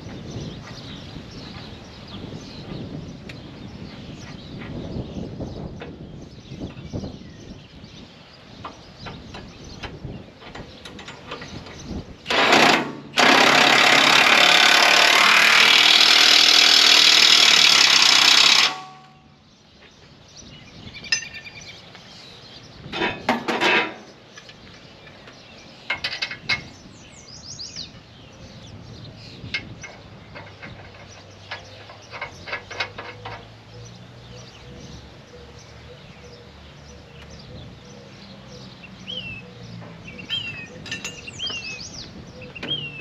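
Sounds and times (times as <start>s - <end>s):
tools clanking on metal: 9.0s - 19.2s, 22.9s - 26.8s, 29.5s - 33.6s, 39.8s - 41.8s
impact wrench hammering: 12.3s - 19.2s.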